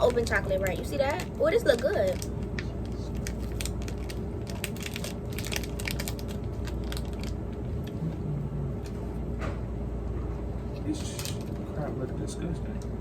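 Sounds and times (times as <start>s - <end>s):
plastic wrapper crackling: 0.0s - 8.0s
cereal bar crunching: 0.0s - 8.2s
low hum: 0.0s - 13.0s.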